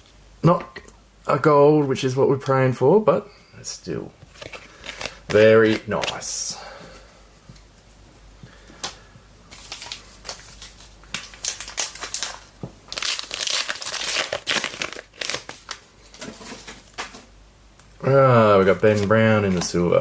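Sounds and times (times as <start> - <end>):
wrapper crinkling: 4.3 - 6.4, 9.5 - 17.2.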